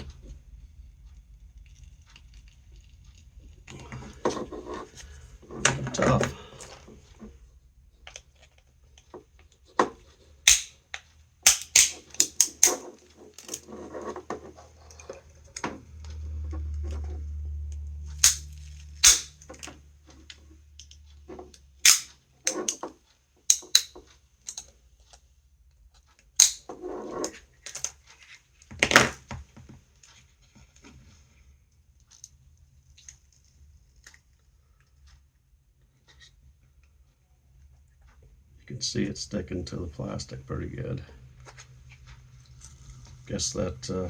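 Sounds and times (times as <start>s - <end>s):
hard plastic clicks and snaps: 10.5s - 13.6s, 18.2s - 18.4s, 19.0s - 19.7s, 21.8s - 22.9s, 23.5s - 24.7s, 26.4s - 26.7s
low rumble: 15.8s - 20.0s.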